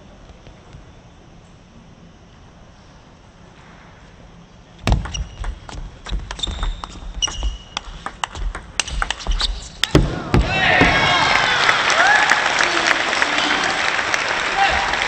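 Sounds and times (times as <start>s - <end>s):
footwork thumps: 4.8s - 11.1s
shoes squeaking on floor: 4.9s - 8.0s, 8.8s - 9.9s
table tennis ball clicking: 4.9s - 10.0s.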